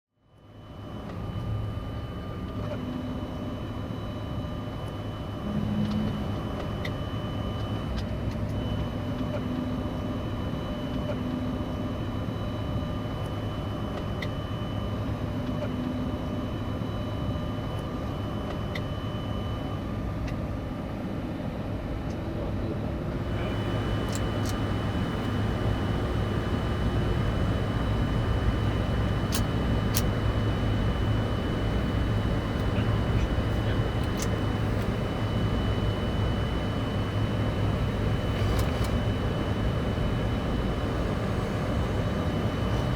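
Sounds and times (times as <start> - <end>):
fans and air conditioning rushing: 20.0 - 42.9
low hum: 23.2 - 42.9
thin high whine: 23.2 - 42.9
sharp clicks: 23.3 - 41.1.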